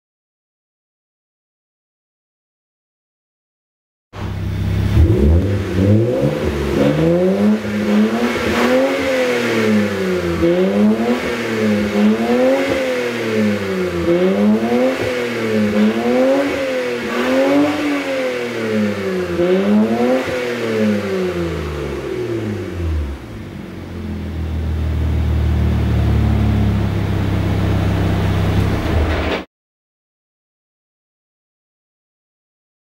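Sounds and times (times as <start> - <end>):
car engine revving and idling: 4.2 - 29.0.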